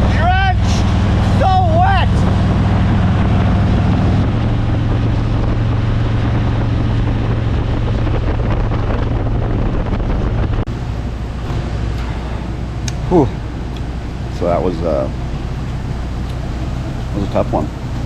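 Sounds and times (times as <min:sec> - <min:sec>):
wind noise on microphone: 0:00.0 - 0:14.3
motorcycle engine running: 0:00.0 - 0:18.0.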